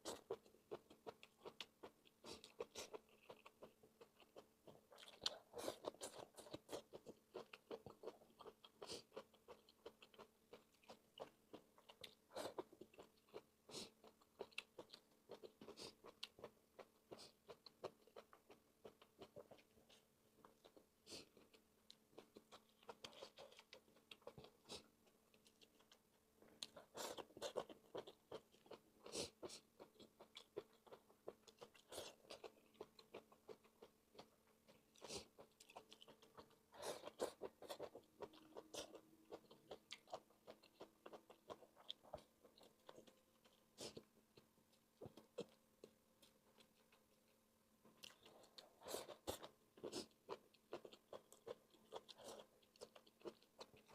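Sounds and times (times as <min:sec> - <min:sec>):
person chewing and biting: 0:26.6 - 0:47.0.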